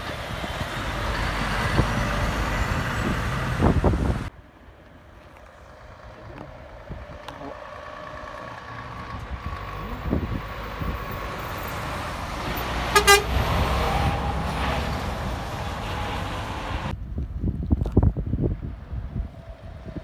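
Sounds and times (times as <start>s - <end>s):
road traffic rumble: 0.0s - 20.0s
truck horn toot: 12.8s - 13.6s.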